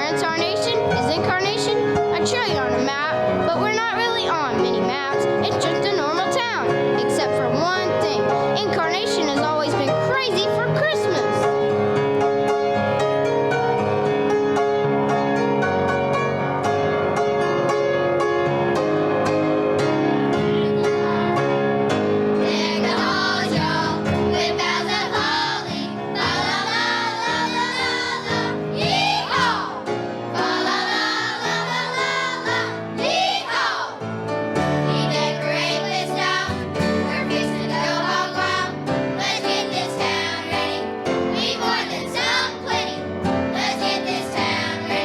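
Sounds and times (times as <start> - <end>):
children's choir singing: 0.0 - 0.8, 20.1 - 45.0
instrumental christmas music: 0.0 - 45.0.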